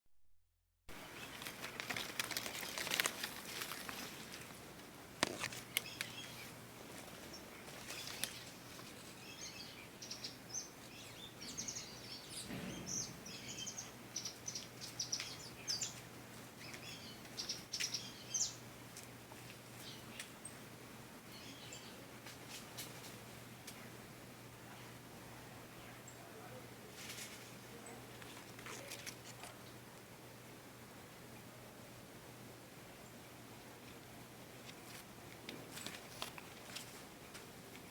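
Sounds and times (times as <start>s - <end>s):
rustling: 0.9s - 9.2s, 26.9s - 29.6s, 34.6s - 37.9s
small birds chirping: 5.4s - 18.6s, 19.7s - 20.7s, 21.3s - 22.0s.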